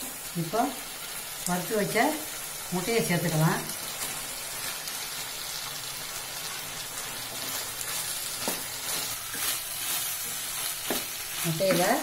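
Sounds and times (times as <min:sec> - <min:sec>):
food sizzling in a pan: 0:00.0 - 0:12.0
wooden spatula stirring: 0:07.2 - 0:12.0.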